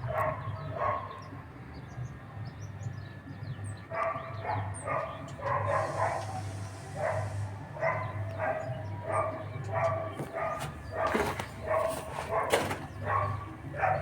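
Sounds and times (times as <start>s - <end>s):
dog barking: 0.0s - 1.2s, 3.9s - 14.0s.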